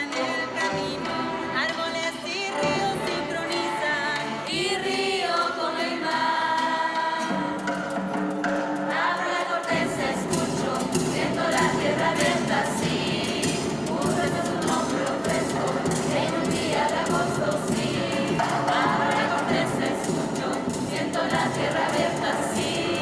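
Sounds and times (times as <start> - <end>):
group singing: 0.0 - 23.0.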